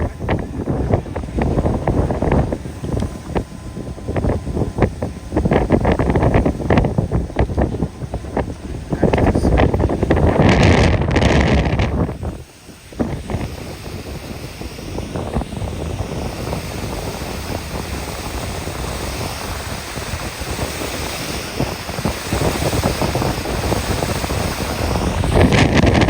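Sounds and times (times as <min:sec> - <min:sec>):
rushing water: 0:00.0 - 0:26.0
wind buffeting microphone: 0:00.0 - 0:26.0.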